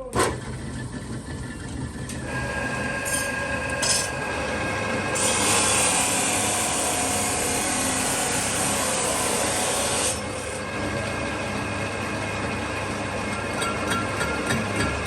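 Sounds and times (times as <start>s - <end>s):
low machine hum: 0.6s - 9.0s
power tool rasping on steel: 5.2s - 10.4s.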